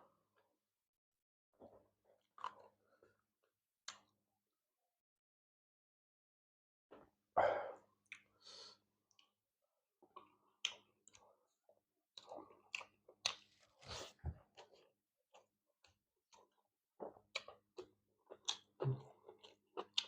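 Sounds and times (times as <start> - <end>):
wet chewing: 12.2 - 20.0.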